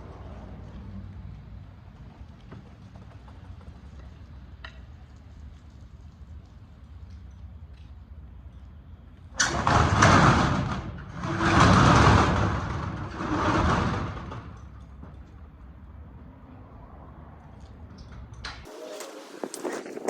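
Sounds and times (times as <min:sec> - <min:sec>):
metal roll-up door rattling: 0:09.4 - 0:15.1.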